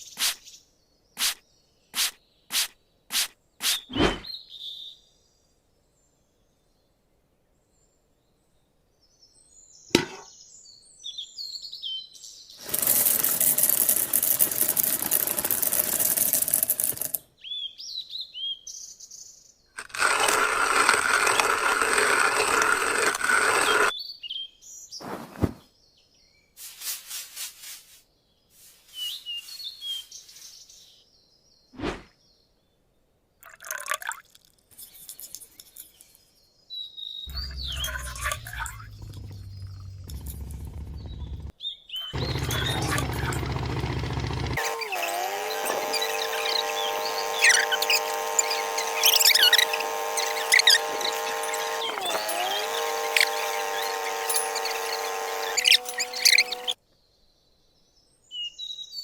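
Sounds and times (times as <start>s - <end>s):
small birds chirping: 34.8s - 56.8s
sharp clicks: 37.3s - 41.5s, 42.2s - 56.8s.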